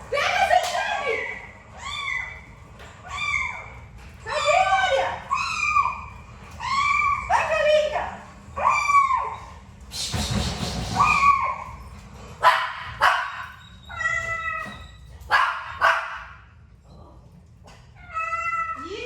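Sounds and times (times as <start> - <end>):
young pet whining and yipping: 13.6 - 15.1.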